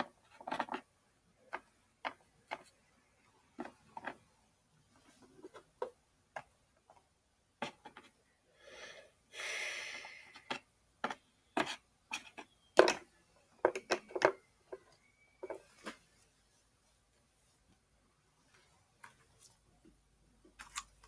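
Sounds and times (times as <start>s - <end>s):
plastic toys clicking: 13.6s - 14.4s.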